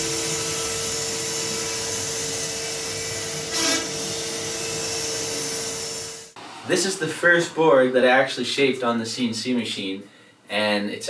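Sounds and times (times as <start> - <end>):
motor whining: 0.0 - 6.4.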